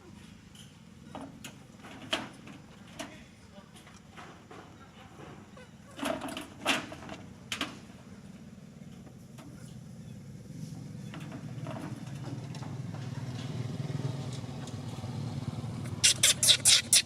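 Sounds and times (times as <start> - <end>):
motorbike engine approaching: 7.8 - 17.0.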